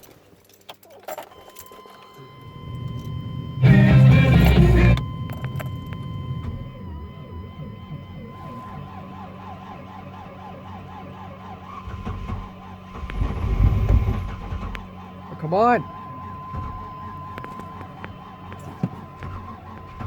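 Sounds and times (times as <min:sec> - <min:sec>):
steady high tone: 0:02.0 - 0:08.7
starter cranking engine slowly: 0:02.3 - 0:20.0.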